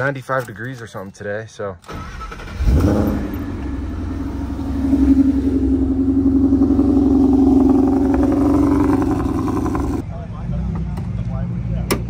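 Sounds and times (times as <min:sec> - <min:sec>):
car engine idling: 0:02.7 - 0:10.4.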